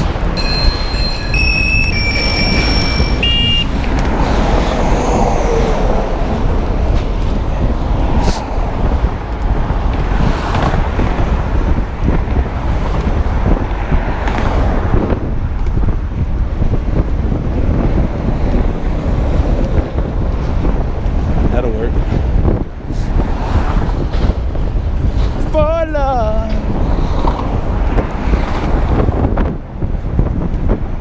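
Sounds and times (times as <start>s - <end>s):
road traffic: 0.0s - 31.0s
wind on microphone: 0.0s - 31.0s
brief high tones: 0.4s - 3.8s.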